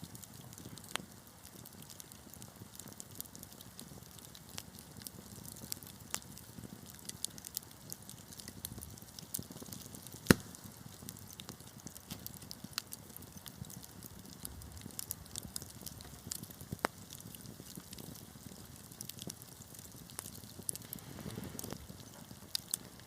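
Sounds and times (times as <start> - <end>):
wood fire crackling: 0.0 - 23.0
loud sharp pop: 10.2 - 10.7.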